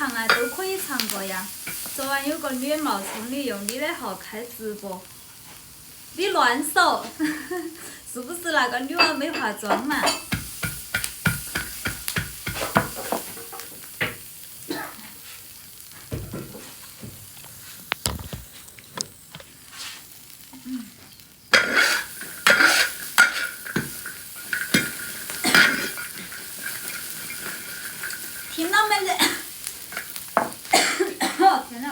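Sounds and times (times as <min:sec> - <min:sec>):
chilies sizzling in hot oil: 0:00.0 - 0:31.9
spatula scraping in a wok: 0:00.2 - 0:03.6, 0:21.5 - 0:30.5.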